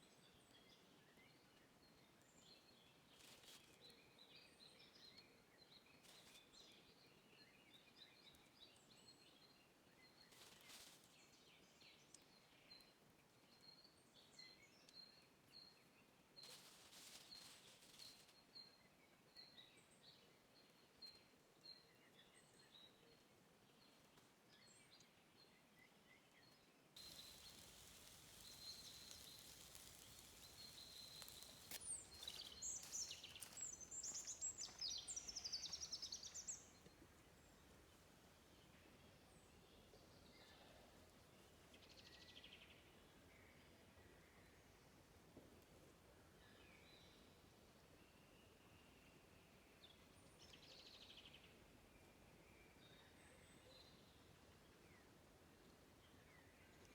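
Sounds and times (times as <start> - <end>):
birdsong chirps and twitters: 17.3 - 44.7.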